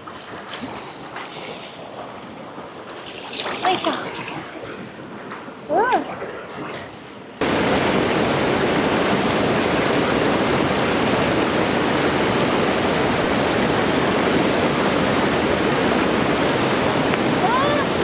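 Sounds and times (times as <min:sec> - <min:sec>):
fast-flowing river water rushing: 0:07.4 - 0:18.0.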